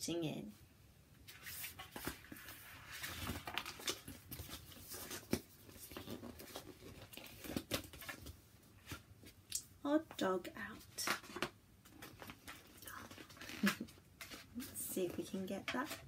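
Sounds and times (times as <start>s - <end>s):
paper rustling: 1.2s - 9.4s.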